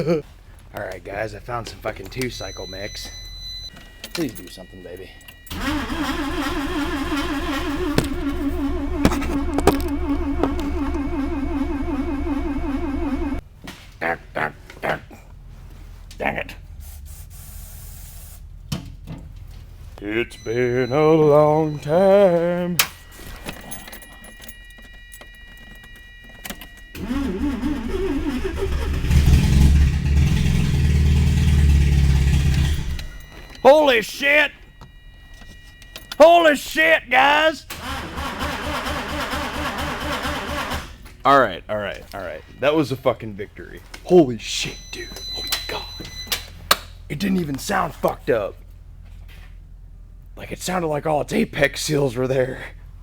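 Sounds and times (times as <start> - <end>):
rotary engine running: 5.5 - 13.4
starter cranking engine: 5.5 - 13.4, 27.0 - 33.2, 37.7 - 41.0.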